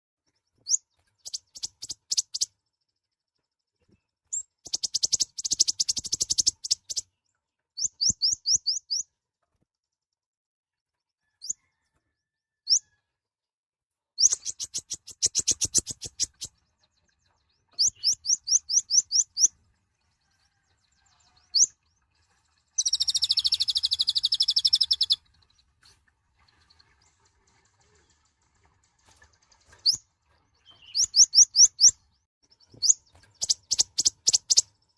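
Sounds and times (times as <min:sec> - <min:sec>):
sunbird chirping: 0:00.5 - 0:03.0, 0:04.3 - 0:07.2, 0:14.2 - 0:25.8, 0:29.8 - 0:34.9.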